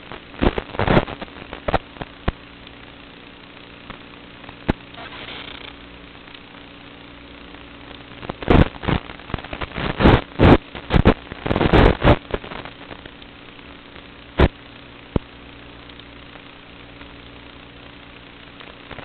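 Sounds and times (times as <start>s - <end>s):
steady low hum: 0.0s - 19.0s
drone motors surging: 4.9s - 5.8s.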